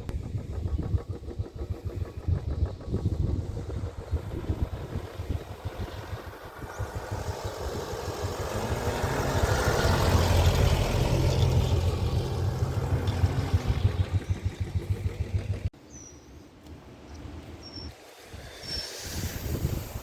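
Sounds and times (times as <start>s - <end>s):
vehicle engine passing by: 0.0s - 15.7s.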